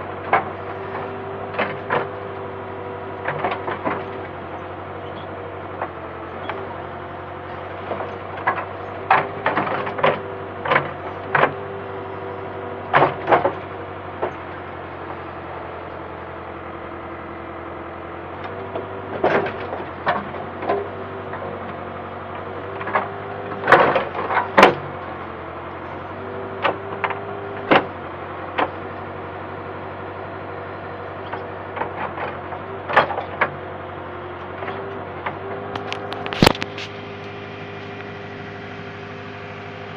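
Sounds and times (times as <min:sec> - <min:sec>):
diesel engine running: 0:00.0 - 0:39.9
knocks and clanks from digging: 0:31.3 - 0:33.6, 0:34.6 - 0:38.1.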